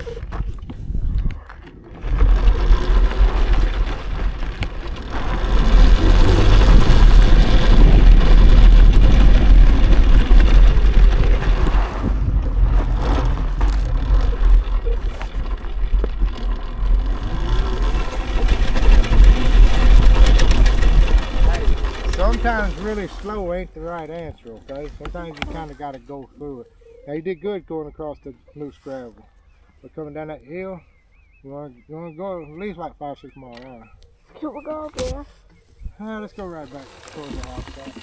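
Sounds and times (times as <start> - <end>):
heavy low rumble: 0.0 - 25.2
tyres on loose gravel: 0.0 - 38.0.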